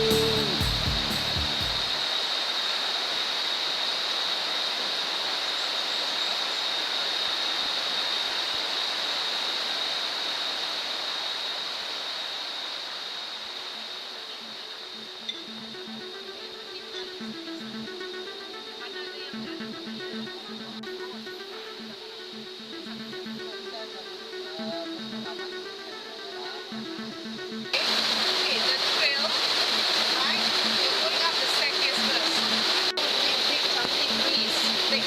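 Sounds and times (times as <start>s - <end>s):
music: 0.0s - 2.0s, 14.1s - 35.0s
thin high-pitched tone: 0.0s - 2.0s
rushing water: 0.0s - 15.2s, 27.8s - 35.0s.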